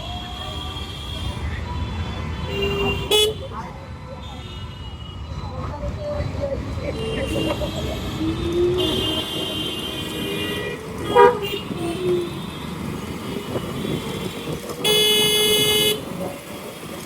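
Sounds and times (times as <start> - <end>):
vehicle horns: 0.0 - 3.6, 6.9 - 16.8
road noise: 0.0 - 17.0
wind: 0.0 - 17.0.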